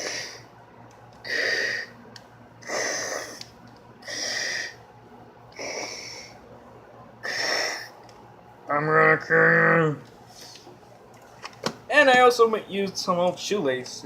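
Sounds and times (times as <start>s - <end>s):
person breathing through mouth: 1.2s - 2.0s, 4.0s - 4.8s.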